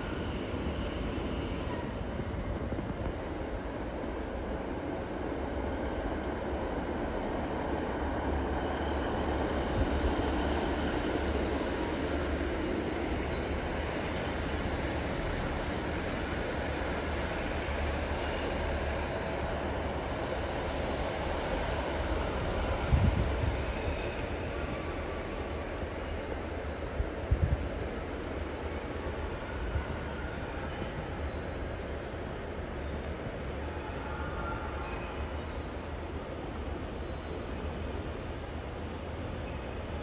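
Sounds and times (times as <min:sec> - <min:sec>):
train rumbling slowly: 0:00.0 - 0:40.0
wheel flange squeals: 0:11.0 - 0:11.7, 0:18.1 - 0:19.2, 0:23.4 - 0:26.8, 0:29.0 - 0:31.6, 0:33.2 - 0:35.8, 0:36.9 - 0:38.4, 0:39.4 - 0:40.0.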